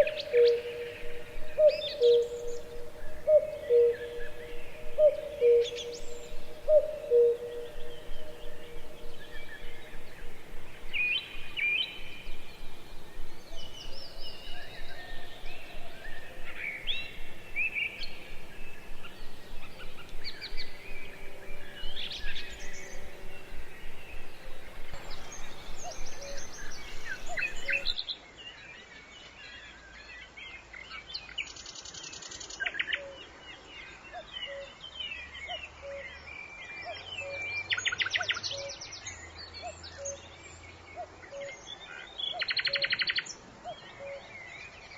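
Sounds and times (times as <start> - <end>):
bird trills: 0.0 - 28.0
birds chirping and calling: 0.0 - 28.0.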